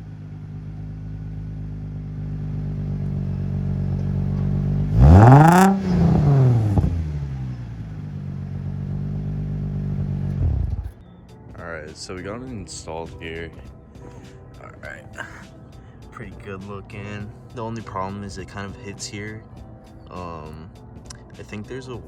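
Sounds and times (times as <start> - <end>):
engine revving: 0.0 - 11.0
car engine idling: 0.0 - 18.4.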